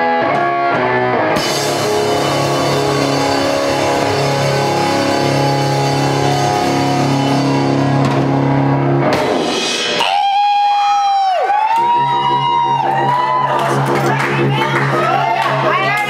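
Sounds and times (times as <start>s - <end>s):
live rock band playing: 0.0s - 16.0s
high held tone: 1.4s - 9.0s.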